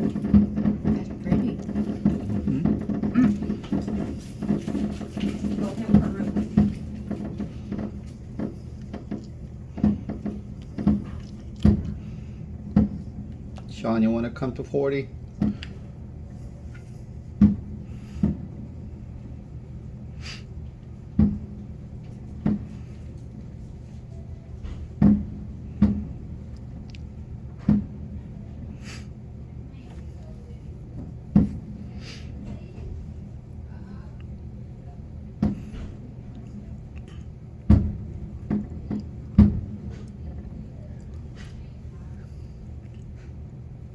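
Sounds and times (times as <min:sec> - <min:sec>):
distant fireworks bangs: 0:00.0 - 0:12.2.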